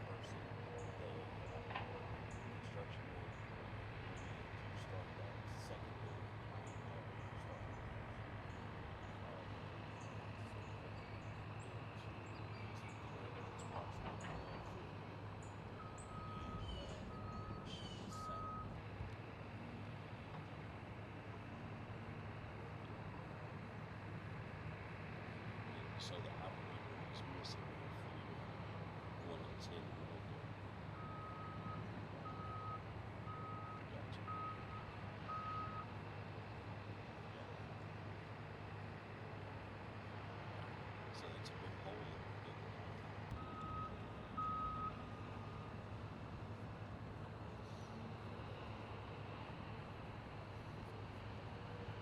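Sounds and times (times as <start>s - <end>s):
low engine hum: 0.0s - 52.0s
vehicle reversing alarm beeping: 8.4s - 18.8s, 29.2s - 36.7s, 41.2s - 46.9s.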